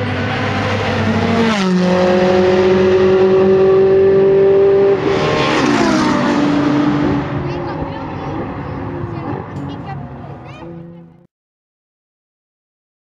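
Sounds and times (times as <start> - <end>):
car engine at high revs: 0.0 - 11.3.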